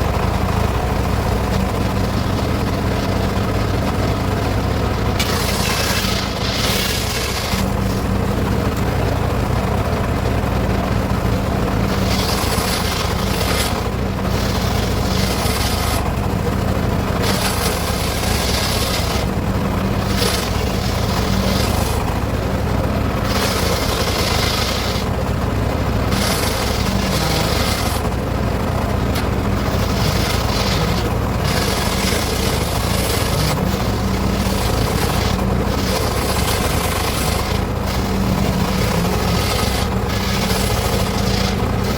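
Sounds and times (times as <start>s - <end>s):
circular saw cutting wood: 5.1s - 8.2s, 11.8s - 16.2s, 17.1s - 22.4s, 23.2s - 25.2s, 26.0s - 28.2s, 29.1s - 41.9s.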